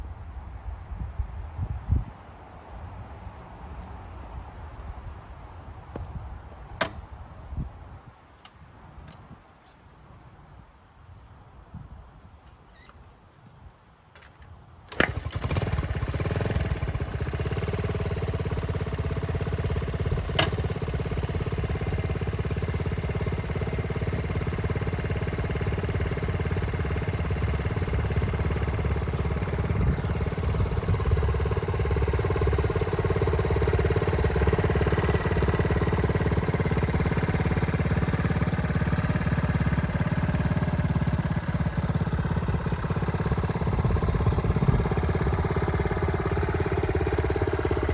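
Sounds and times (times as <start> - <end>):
motorcycle engine starting and idling: 14.0 - 47.9.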